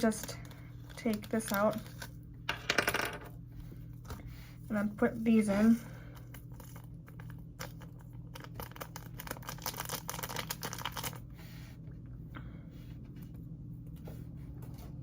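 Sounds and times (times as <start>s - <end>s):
plastic packaging crinkling: 0.9s - 2.2s, 6.3s - 11.2s.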